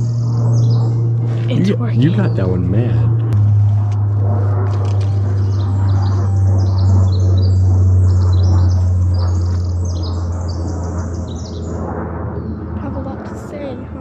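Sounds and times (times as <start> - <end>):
songbird chip notes: 0.0 - 12.9
steady low hum: 0.0 - 14.0.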